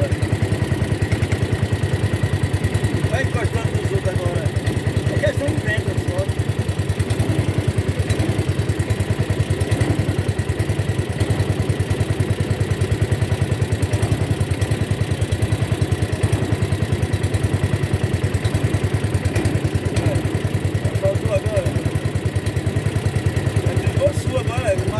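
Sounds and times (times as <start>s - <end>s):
small boat engine thudding: 0.0s - 24.9s.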